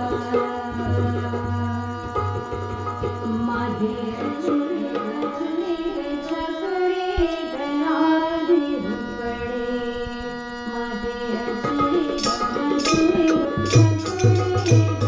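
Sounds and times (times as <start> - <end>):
held instrumental notes: 0.0 - 15.0
hand drum rhythm: 11.5 - 15.0.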